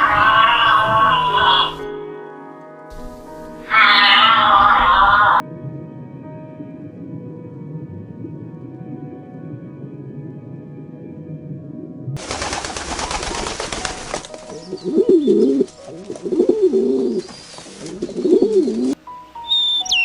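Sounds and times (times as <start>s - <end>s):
low droning music: 0.0s - 20.0s
pigeon cooing: 13.5s - 20.0s.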